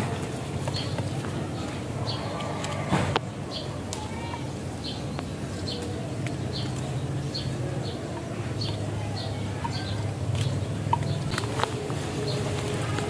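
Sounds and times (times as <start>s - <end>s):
bird chirping: 3.4s - 13.0s.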